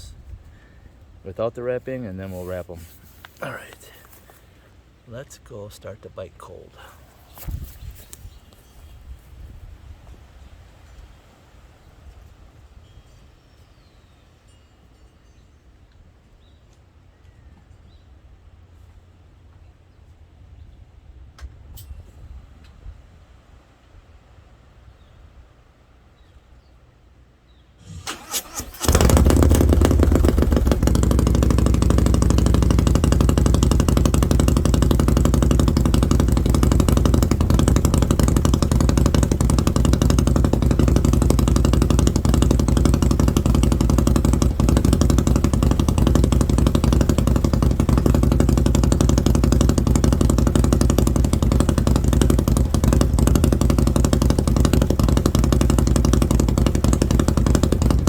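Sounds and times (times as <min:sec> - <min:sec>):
motorcycle engine fast idle: 0:27.8 - 0:58.0
starter motor cranking: 0:27.8 - 0:58.0.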